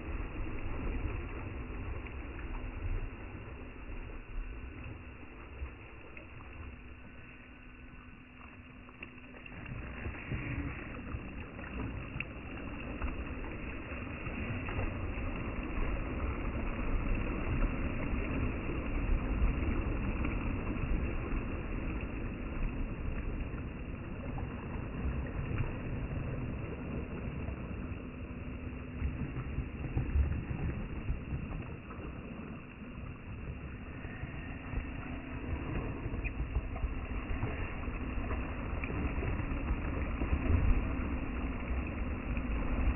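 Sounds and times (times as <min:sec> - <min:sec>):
electric motor whine: 0:00.0 - 0:42.9
low rumble: 0:00.0 - 0:42.9.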